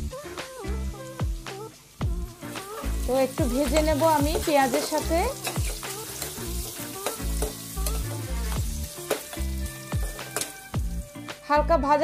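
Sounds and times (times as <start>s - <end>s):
meat frying in oil sizzling: 0.0s - 11.4s
metal spatula scraping a pot: 2.8s - 10.6s.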